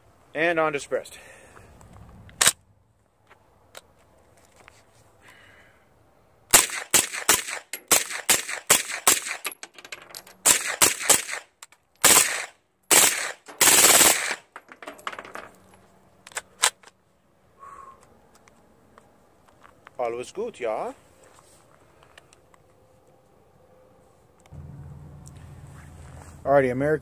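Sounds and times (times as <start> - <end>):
suppressed gunshots: 6.5 - 9.4, 10.4 - 11.4.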